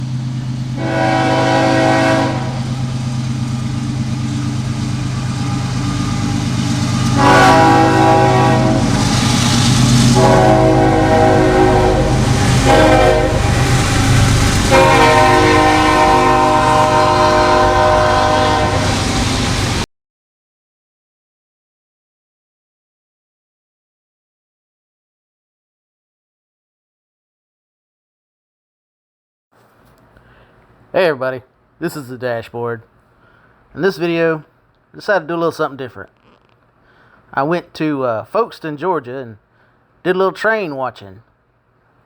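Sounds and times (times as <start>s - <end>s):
locomotive air horn: 0.8s - 3.0s, 5.1s - 19.8s.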